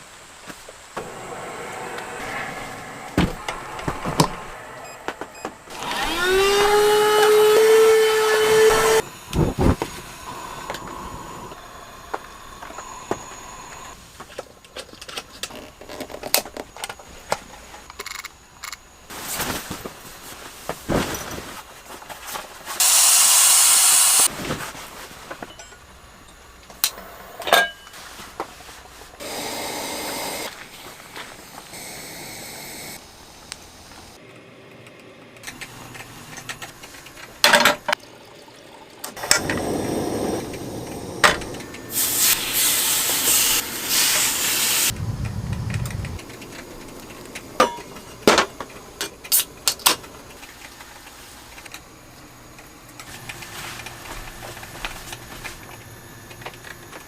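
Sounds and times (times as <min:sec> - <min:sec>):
hiss of air: 0:00.0 - 0:07.5, 0:22.8 - 0:24.4, 0:28.0 - 0:34.2, 0:39.4 - 0:46.6
small electric motor whine: 0:01.0 - 0:09.4.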